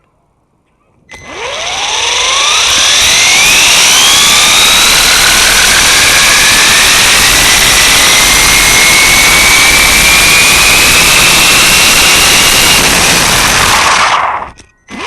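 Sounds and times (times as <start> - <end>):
electric motor whining: 1.1 - 15.0
loud rushing noise: 2.5 - 14.5.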